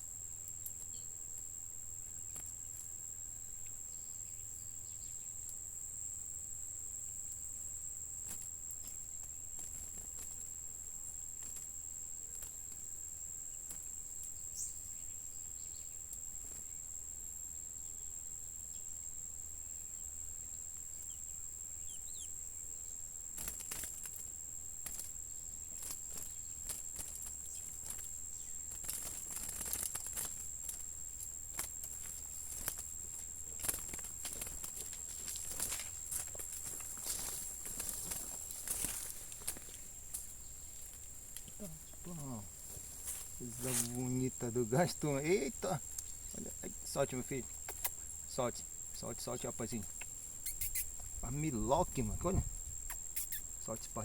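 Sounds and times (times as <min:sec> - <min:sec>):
insect trilling: 0:00.0 - 0:54.0.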